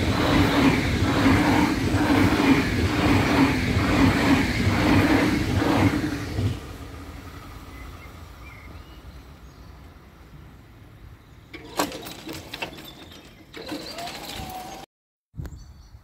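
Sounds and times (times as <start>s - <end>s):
train wheels clattering on rails: 0.0s - 6.7s, 11.5s - 14.8s
quiet train rumble: 0.0s - 12.4s.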